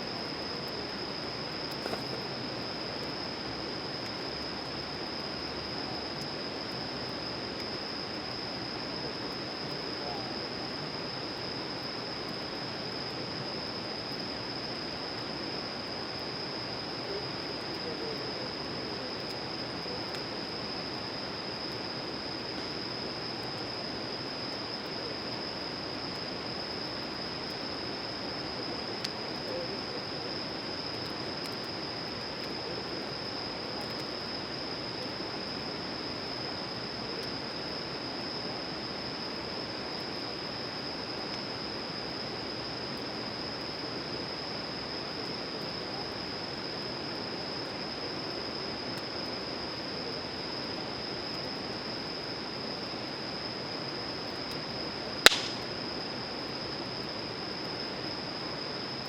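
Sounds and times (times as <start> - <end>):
faint ticks: 55.3 - 55.6.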